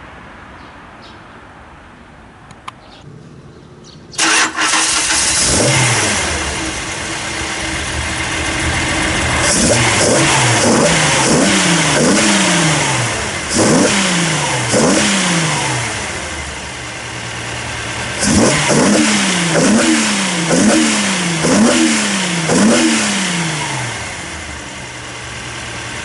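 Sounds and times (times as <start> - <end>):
car engine starting and revving: 4.2 - 26.0.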